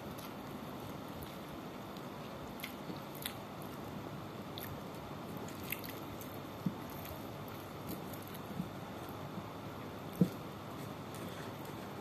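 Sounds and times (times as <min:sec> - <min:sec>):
person chewing: 0:00.0 - 0:03.9, 0:04.5 - 0:09.2.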